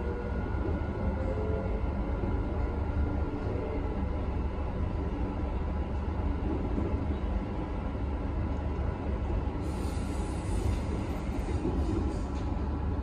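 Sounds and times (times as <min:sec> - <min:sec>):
electric train rumble: 0:00.0 - 0:13.0
hiss: 0:09.6 - 0:12.4.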